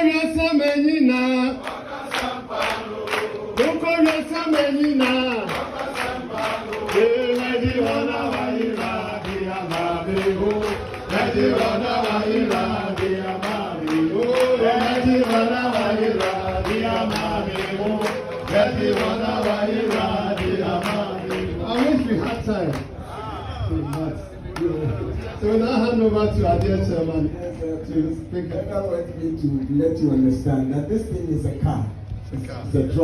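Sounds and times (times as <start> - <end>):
voices singing chorus: 1.1 - 22.0
steady rhythmic beat: 1.6 - 23.0.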